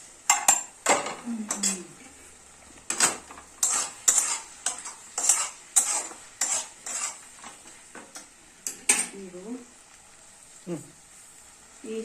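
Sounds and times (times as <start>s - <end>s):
chicken frying: 0.0s - 12.0s
spatula scraping a pan: 2.9s - 7.8s.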